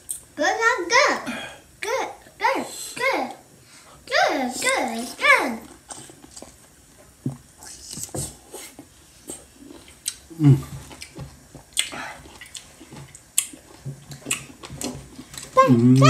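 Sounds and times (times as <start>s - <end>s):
man chewing and slurping: 5.6s - 6.7s, 7.3s - 16.0s
man groaning: 10.3s - 10.7s
wet lip smacks: 11.0s - 14.5s.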